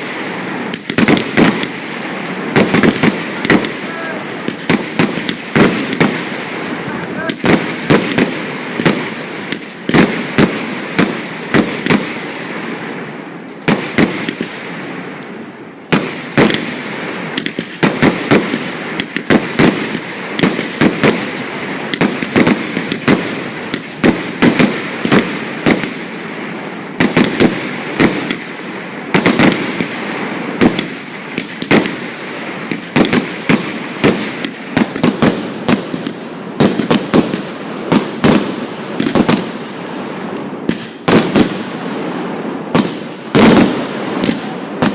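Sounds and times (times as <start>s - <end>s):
background fireworks: 0.0s - 44.9s
firecracker bangs: 0.0s - 44.9s.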